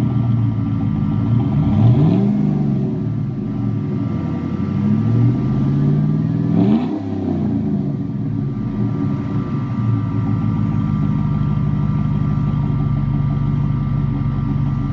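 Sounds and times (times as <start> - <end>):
truck engine revving and idling: 0.0 - 14.9.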